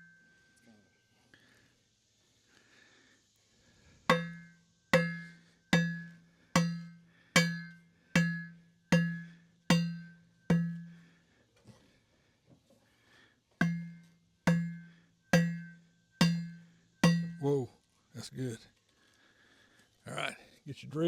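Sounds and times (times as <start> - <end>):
hammer striking metal: 4.1 - 10.9, 13.6 - 17.6.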